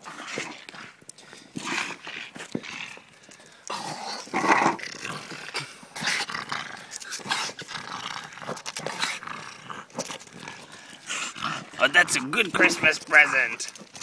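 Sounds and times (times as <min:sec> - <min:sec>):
dog growling: 0:00.0 - 0:14.0.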